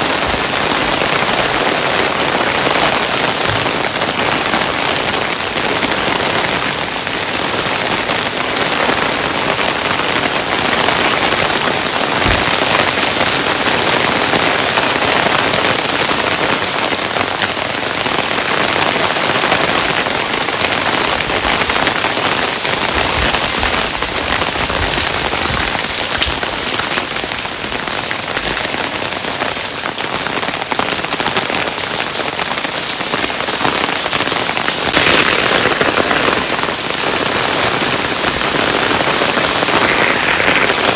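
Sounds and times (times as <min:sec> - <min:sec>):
hailstones pattering: 0:00.0 - 0:40.9
heavy hailstone thuds: 0:12.2 - 0:13.0.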